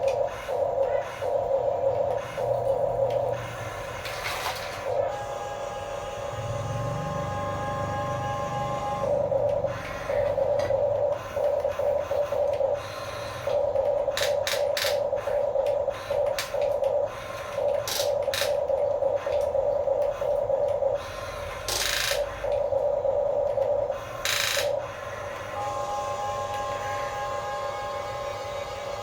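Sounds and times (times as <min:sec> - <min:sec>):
small electric gear motors whirring: 0:00.0 - 0:20.3
steady higher whine: 0:00.0 - 0:29.0.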